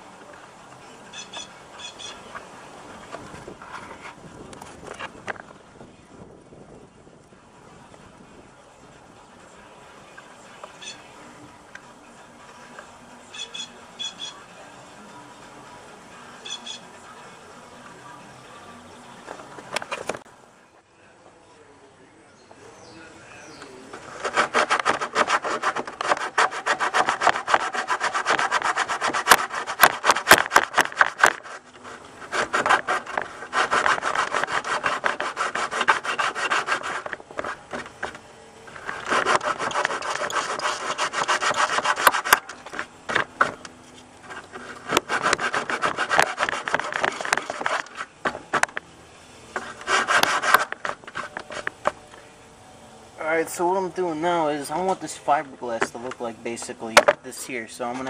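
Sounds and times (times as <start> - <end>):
sandpaper scratching fiberglass: 24.0 - 38.1, 38.7 - 48.8, 49.5 - 52.0.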